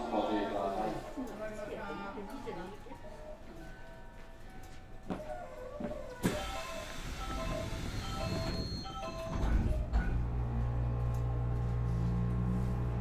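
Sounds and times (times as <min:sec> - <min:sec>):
train equipment hum: 0:06.3 - 0:13.0
chiming melody: 0:06.4 - 0:09.4.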